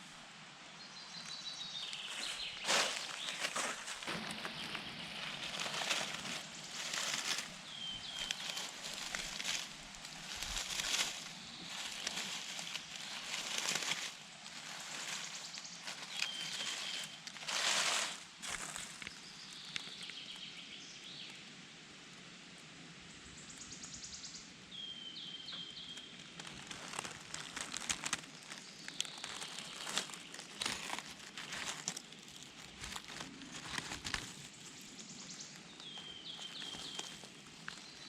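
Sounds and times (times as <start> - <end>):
songbird singing: 0.6 - 21.5, 23.1 - 38.0
footsteps in leaf litter: 1.4 - 20.1, 26.2 - 38.0
twigs cracking: 1.8 - 20.2, 26.3 - 34.7, 35.6 - 38.0.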